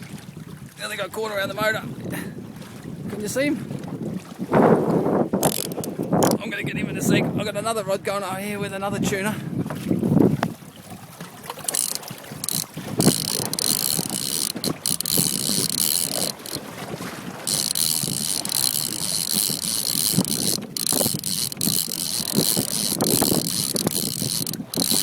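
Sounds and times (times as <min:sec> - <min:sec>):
boat and sea noise: 0:00.0 - 0:25.0
fishing reel drag buzzing: 0:05.4 - 0:06.4, 0:11.6 - 0:16.6, 0:17.4 - 0:25.0.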